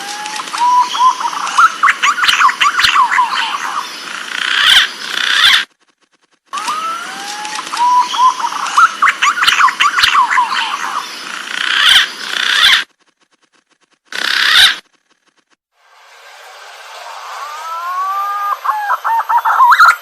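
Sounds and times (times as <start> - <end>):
pigeon whistled calls: 0.4 - 3.8, 7.7 - 11.0, 17.4 - 20.0.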